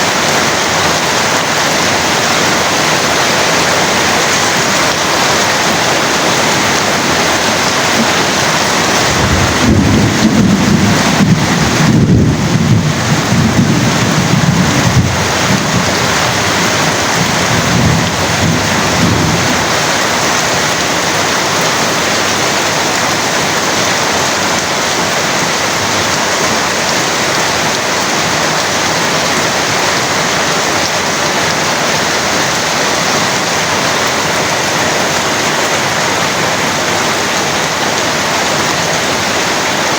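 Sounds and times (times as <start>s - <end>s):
heavy rain pouring: 0.0s - 39.9s
low rumble of thunder: 8.0s - 19.8s.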